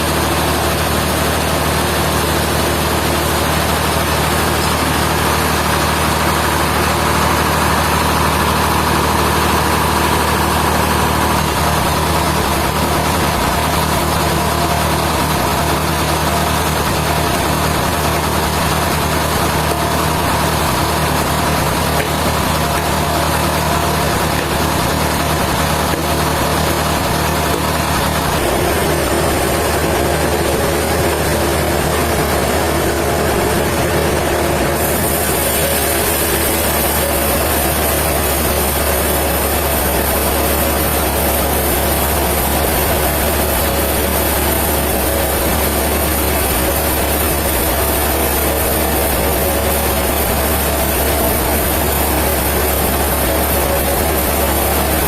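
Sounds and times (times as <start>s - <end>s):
sawmill machinery droning: 0.0s - 55.0s.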